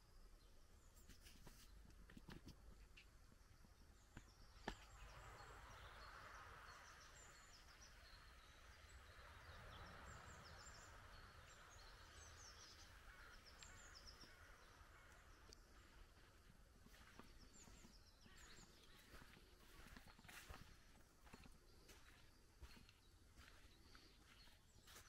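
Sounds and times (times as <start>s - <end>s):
low steady background hiss: 0.0s - 18.9s
small birds twittering: 0.7s - 25.0s.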